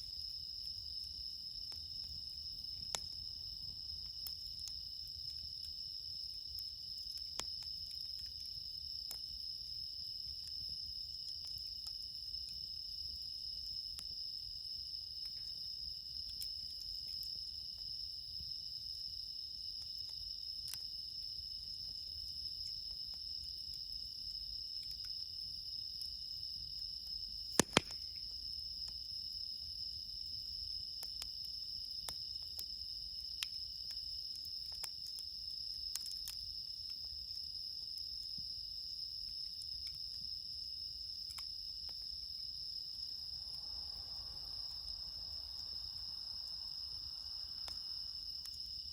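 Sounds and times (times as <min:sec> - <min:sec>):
crackling campfire: 0:00.0 - 0:48.9
crickets trilling: 0:00.0 - 0:48.9
faint ticks: 0:00.2 - 0:03.2, 0:06.5 - 0:09.2, 0:10.3 - 0:12.6, 0:16.2 - 0:17.9, 0:24.8 - 0:25.3, 0:31.0 - 0:37.2, 0:41.2 - 0:42.2, 0:47.4 - 0:47.8, 0:48.4 - 0:48.7
sharp pops: 0:27.6 - 0:28.2.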